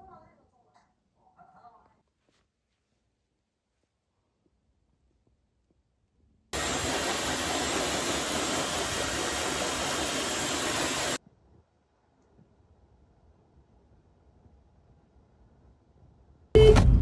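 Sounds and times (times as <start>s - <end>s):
hair dryer blowing: 6.6s - 11.2s.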